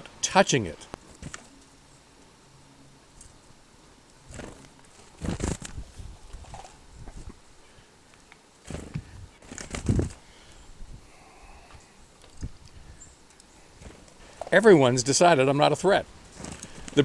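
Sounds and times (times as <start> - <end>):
bird wings fluttering: 1.0 - 1.7, 4.2 - 7.4, 8.6 - 10.6, 13.6 - 14.6, 16.0 - 17.0.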